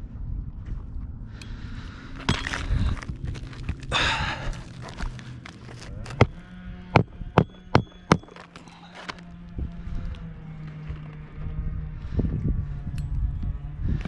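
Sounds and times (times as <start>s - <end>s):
shingles and tools scraping: 2.1s - 9.2s
sharp knocks: 7.0s - 8.5s.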